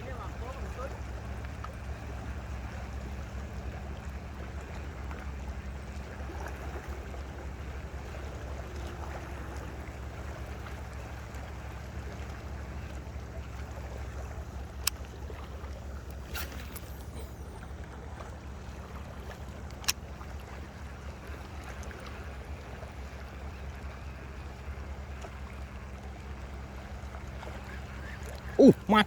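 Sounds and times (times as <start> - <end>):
water or wind noise: 0.0 - 29.0
motor hum: 0.2 - 29.0.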